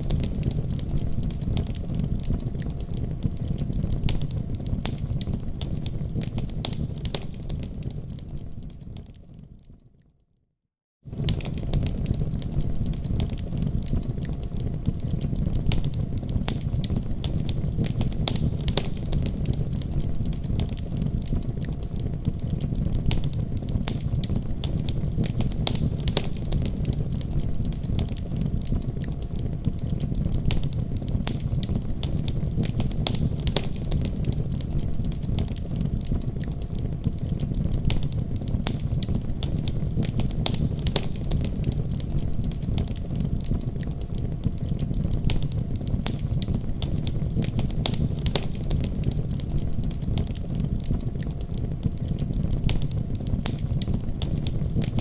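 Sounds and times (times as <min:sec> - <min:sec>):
fire crackling and popping: 0:00.0 - 0:10.0, 0:11.1 - 0:55.0
low rumble of flames: 0:00.0 - 0:10.0, 0:11.0 - 0:55.0.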